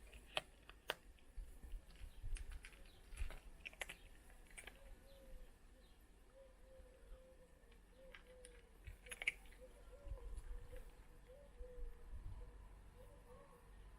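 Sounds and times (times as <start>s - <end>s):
cats crunching dry food: 0.0s - 5.1s, 7.7s - 11.0s.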